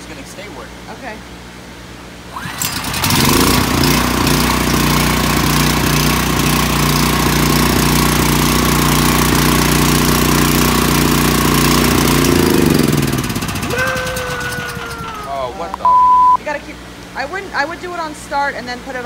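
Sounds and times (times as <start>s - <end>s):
generator starter cranking: 2.3s - 15.7s
generator engine running loud: 2.4s - 15.8s.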